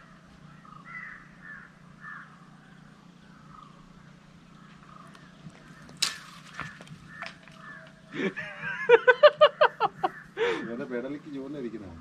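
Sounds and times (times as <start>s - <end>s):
bird calling: 0.0s - 12.0s.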